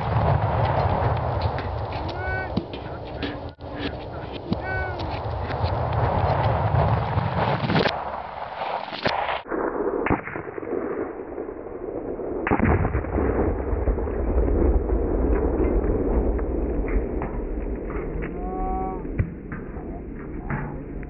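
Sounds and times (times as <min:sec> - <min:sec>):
heavy low rumble: 0:00.0 - 0:08.6, 0:09.3 - 0:21.0
exploding target: 0:00.0 - 0:21.0
rifle shots: 0:03.8 - 0:14.0.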